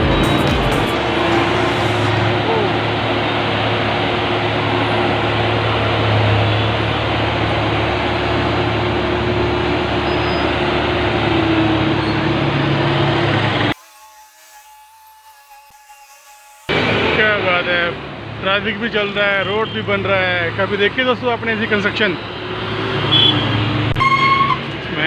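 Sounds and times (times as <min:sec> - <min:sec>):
low hum: 0:00.0 - 0:04.2
engine and road traffic noise: 0:00.0 - 0:13.8, 0:16.7 - 0:25.0.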